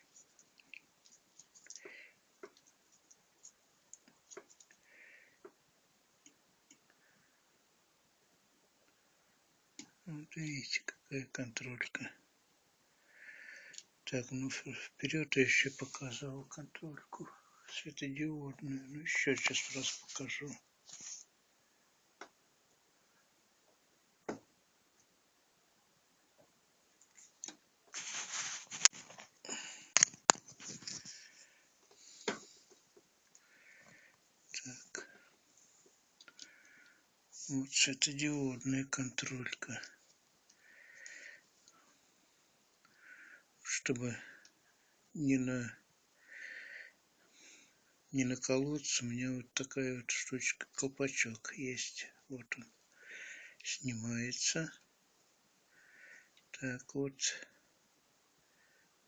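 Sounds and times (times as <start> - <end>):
faint clicks and taps: 0.0 - 4.8, 6.2 - 7.0, 26.4 - 34.0, 35.0 - 37.0
rustling and rummaging: 27.1 - 31.3
objects being handled: 27.1 - 32.9.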